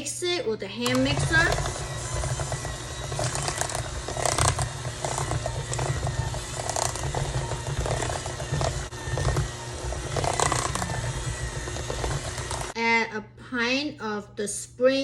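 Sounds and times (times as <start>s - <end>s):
electric hand mixer running: 0.8s - 12.8s.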